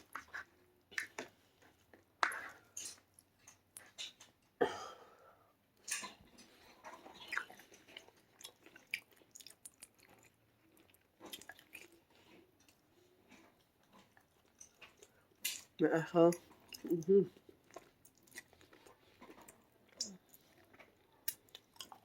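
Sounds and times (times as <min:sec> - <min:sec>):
person chewing with wet smacks: 0:00.0 - 0:04.6, 0:05.6 - 0:22.0.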